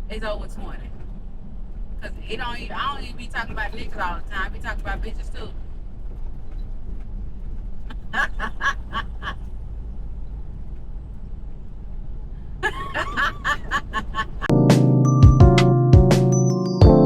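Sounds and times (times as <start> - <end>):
truck cab rumble: 5.1 - 14.6
woman laughing: 7.9 - 9.5, 12.6 - 14.5.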